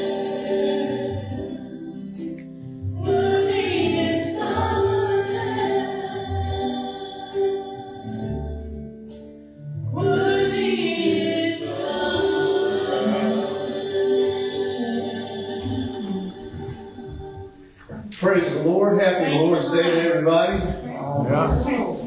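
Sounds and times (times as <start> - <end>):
choir-like vocals: 0.0 - 22.0
slow church worship music: 0.0 - 22.0.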